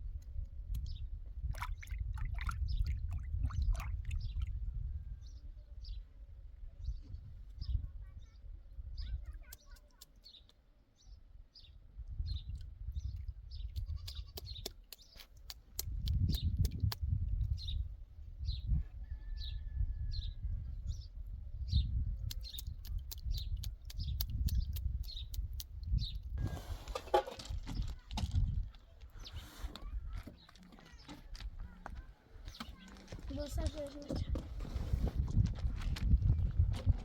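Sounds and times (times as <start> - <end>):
small bird chirping: 6.8 - 19.2, 20.9 - 26.4.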